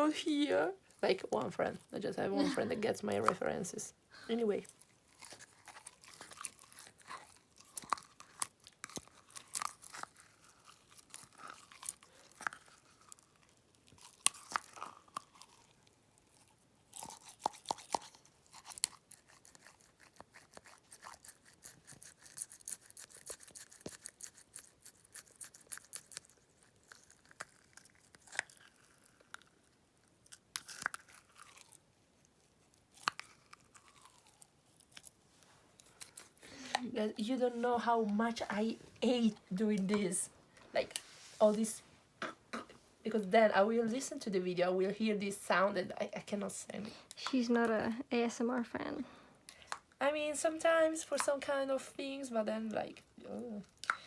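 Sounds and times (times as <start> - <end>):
small wet clicks and crackles: 4.6 - 36.4.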